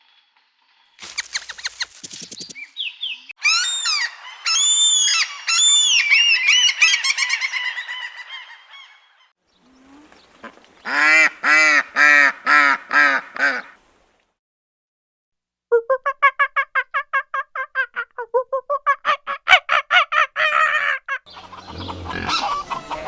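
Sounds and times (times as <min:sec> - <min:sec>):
waterfowl honking: 0:10.0 - 0:13.8, 0:21.3 - 0:23.0.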